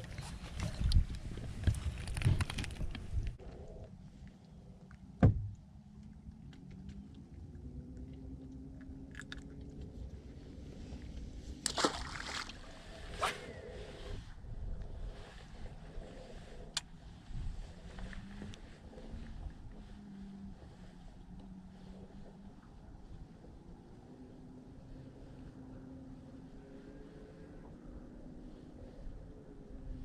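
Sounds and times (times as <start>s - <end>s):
wind: 0.0s - 30.0s
water sloshing against boat: 11.6s - 12.8s.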